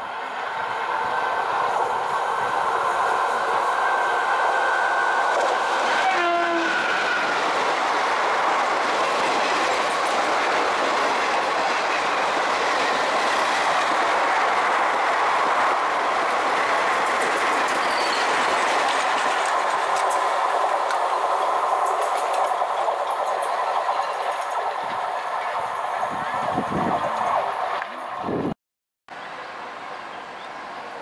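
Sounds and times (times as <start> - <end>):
train coaches rushing past: 0.0 - 28.5
train horn: 4.7 - 7.5.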